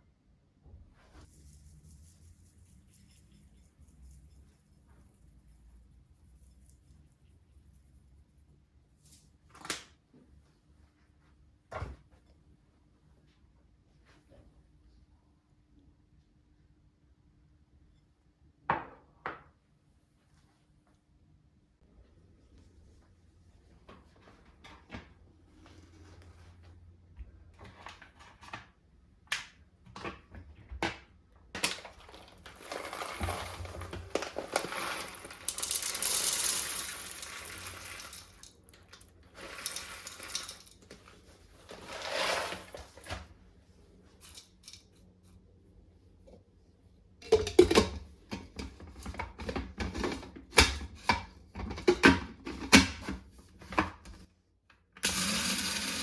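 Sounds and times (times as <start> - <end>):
rustling or pouring: 1.0 - 7.4, 31.7 - 43.2.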